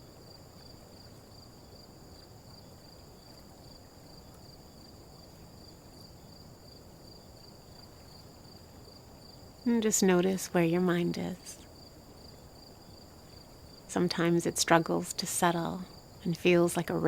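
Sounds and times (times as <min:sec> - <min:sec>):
crickets chirping: 0:00.0 - 0:17.0
low hiss: 0:00.0 - 0:17.0.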